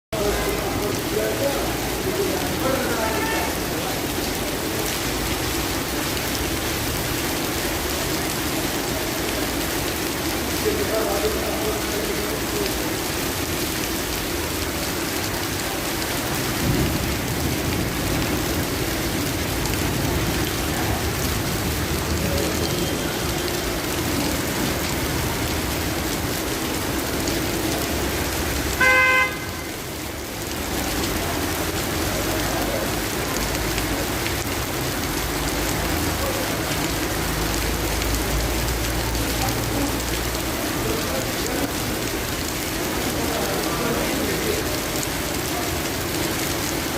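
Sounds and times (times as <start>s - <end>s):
heavy rain on street: 0.1s - 46.9s
car horn honk: 28.8s - 29.8s.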